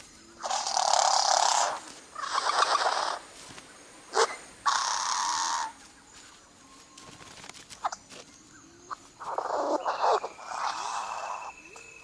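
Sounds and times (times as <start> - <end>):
bird harsh rasping calls: 0.4 - 3.3, 4.1 - 5.8, 8.9 - 11.6.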